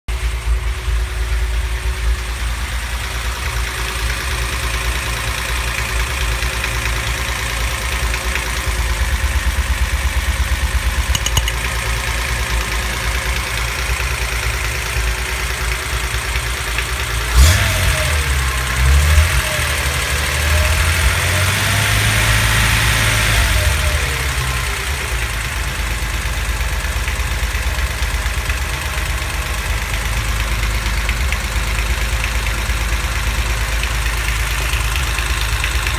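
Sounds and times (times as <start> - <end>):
car engine idling with knock: 0.1 - 17.6, 24.4 - 35.9
car engine revving: 17.3 - 24.7.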